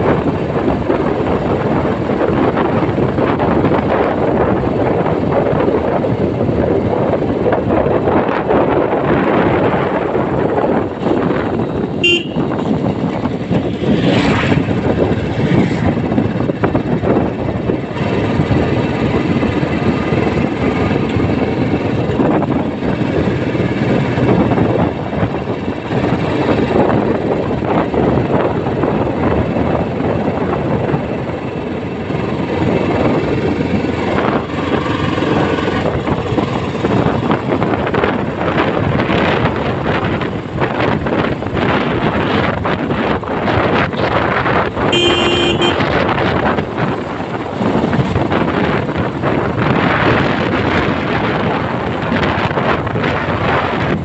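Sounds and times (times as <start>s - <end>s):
motorcycle engine running: 0.0s - 54.0s
horn toot: 12.0s - 12.6s, 44.9s - 46.0s.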